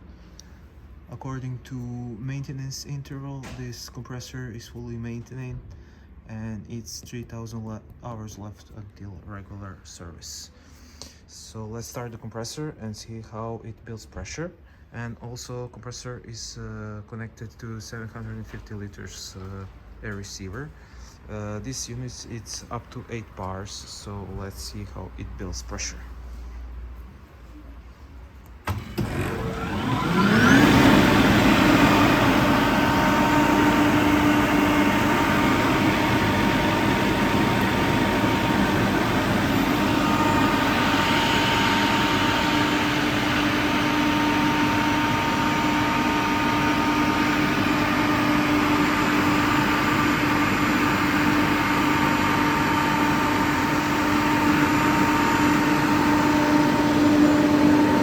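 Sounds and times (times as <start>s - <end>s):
air compressor running: 28.6s - 58.0s.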